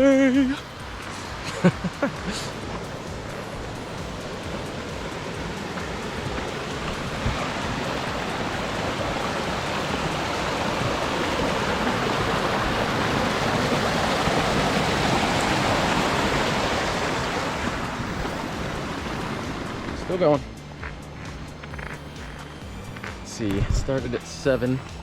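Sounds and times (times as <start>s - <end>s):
rushing stream water: 0.0s - 25.0s.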